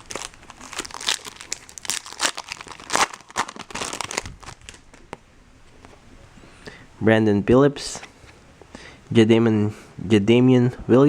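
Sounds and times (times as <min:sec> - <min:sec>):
wrapper crinkling and tearing: 0:00.0 - 0:05.2.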